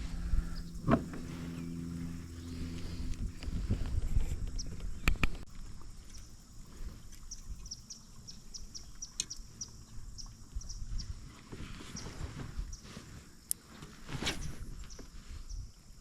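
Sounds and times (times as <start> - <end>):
handling bumps: 0.0 - 5.4
small bird chirping: 7.0 - 11.2.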